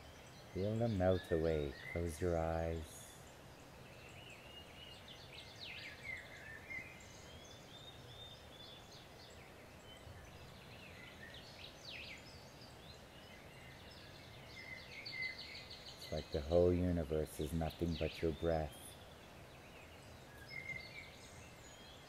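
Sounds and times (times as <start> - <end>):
birds chirping: 0.0 - 22.0
low background hiss: 0.0 - 22.0.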